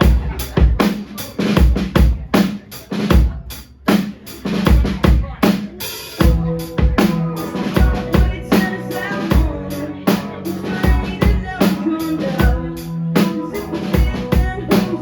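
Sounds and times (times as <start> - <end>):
drum kit rock beat: 0.0 - 15.0
held pitched instrument notes: 6.2 - 15.0.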